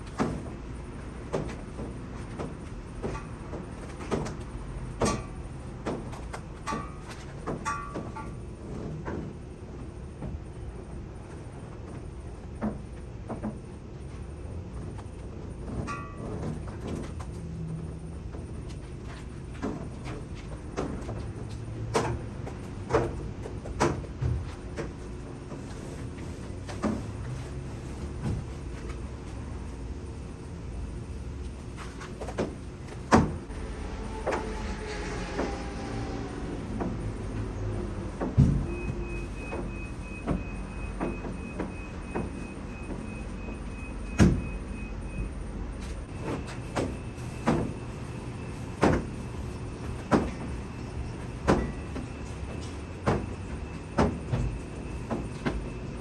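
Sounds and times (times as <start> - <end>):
knocks and clunks: 14.8 - 35.8, 36.6 - 44.6, 45.9 - 56.0
metallic clanks and knocks: 15.6 - 24.9.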